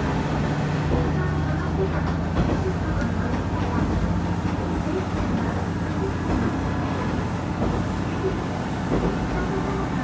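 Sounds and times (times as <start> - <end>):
wheels rumbling on track: 0.0 - 10.0.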